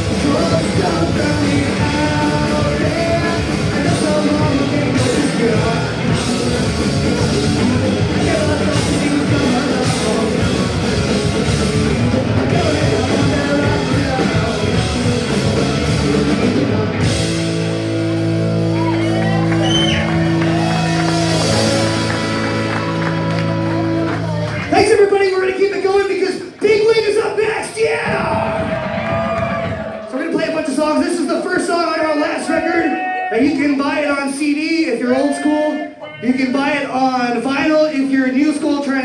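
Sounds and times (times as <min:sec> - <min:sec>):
punk rock band playing live: 0:00.0 - 0:30.0.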